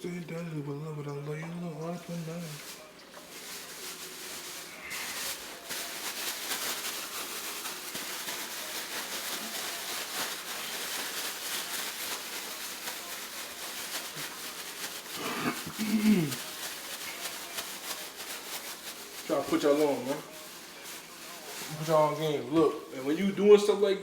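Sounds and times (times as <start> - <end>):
chicken frying in hot oil: 6.8 - 22.2.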